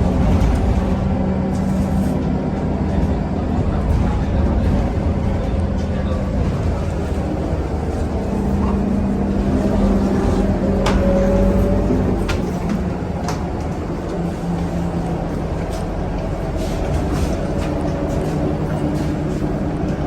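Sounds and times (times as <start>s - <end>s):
bus engine and road drone: 0.0s - 20.0s.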